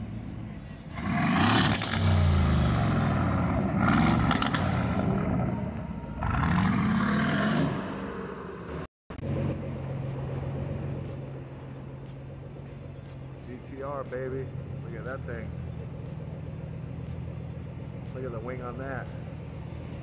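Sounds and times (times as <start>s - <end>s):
car engine low drone: 0.0s - 20.0s
car engine revving loudly: 0.9s - 9.7s.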